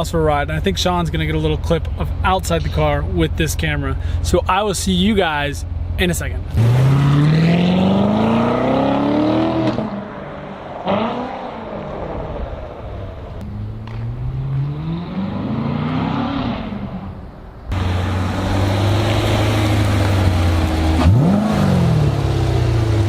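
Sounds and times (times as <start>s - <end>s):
car engine accelerating: 5.8s - 23.0s.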